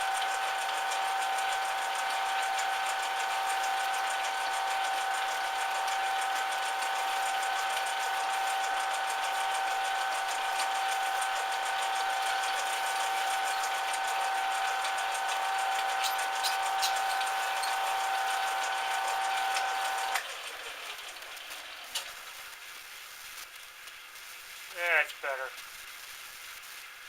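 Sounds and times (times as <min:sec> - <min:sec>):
metal lathe whining: 0:00.0 - 0:20.3.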